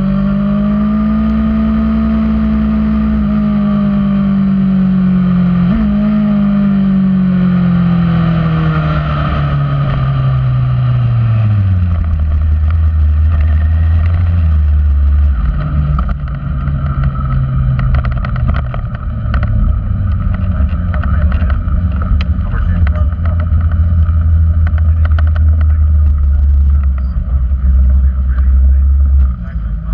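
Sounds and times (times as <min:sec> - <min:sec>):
motorcycle engine revs falling: 0:00.0 - 0:29.9
scattered clicks: 0:24.6 - 0:27.2.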